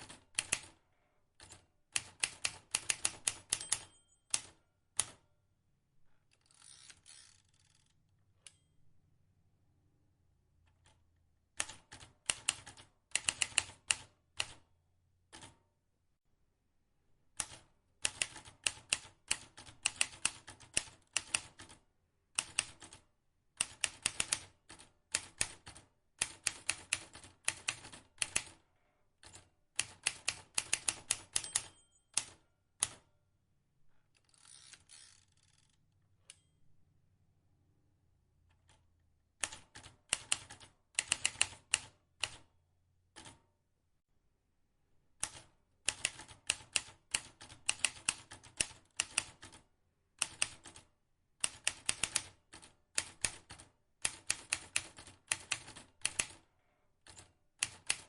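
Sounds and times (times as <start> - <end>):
typewriter keys clicking: 29.2 - 33.0, 51.4 - 56.4, 57.0 - 58.0.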